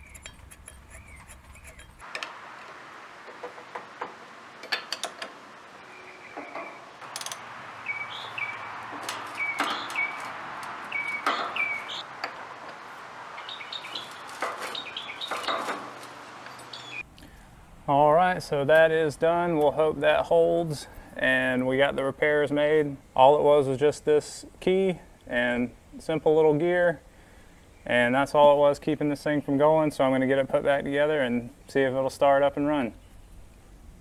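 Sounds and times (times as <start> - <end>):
bird chirps: 5.8 - 7.0, 7.8 - 12.2, 13.4 - 17.1
hand tools clicking on metal: 6.4 - 7.5, 8.9 - 12.9.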